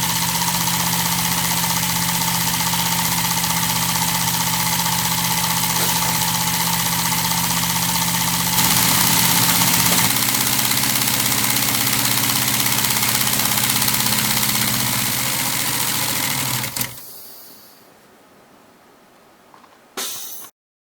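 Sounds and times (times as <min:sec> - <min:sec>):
compressed air hissing: 0:04.6 - 0:17.9.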